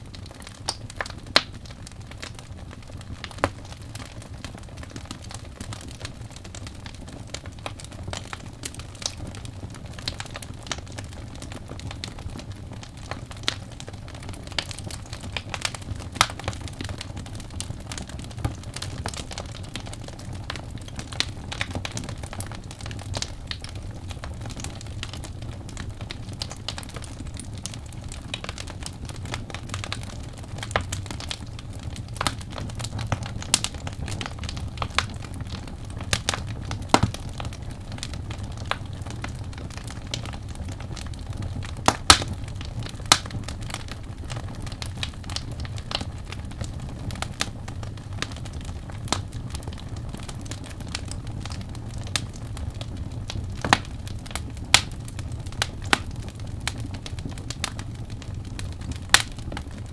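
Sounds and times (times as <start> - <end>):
low steady rumble: 0.0 - 59.9
wood fire crackling: 0.0 - 59.9.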